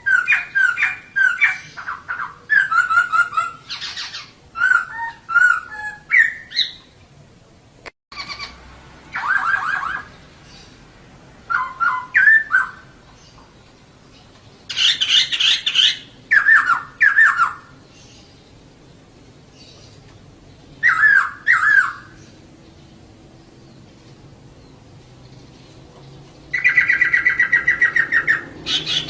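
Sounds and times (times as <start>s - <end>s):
bird calling in quick notes: 14.7s - 17.7s, 26.5s - 29.0s.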